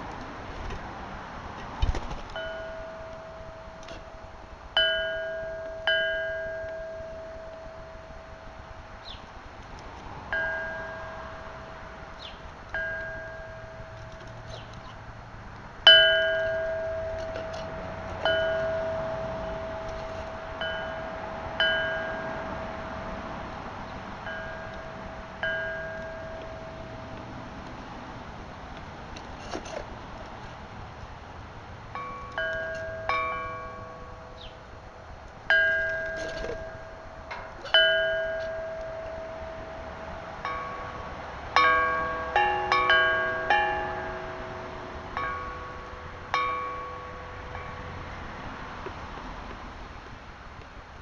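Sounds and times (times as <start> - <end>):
metal chime ringing: 2.4 - 8.6, 10.3 - 12.0, 12.8 - 14.6, 15.9 - 23.2, 24.2 - 27.2, 32.0 - 48.5.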